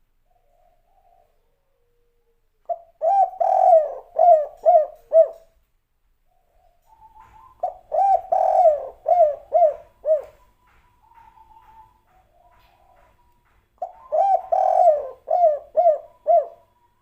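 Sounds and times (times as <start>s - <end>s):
dove cooing: 0.2s - 5.6s, 6.3s - 17.0s.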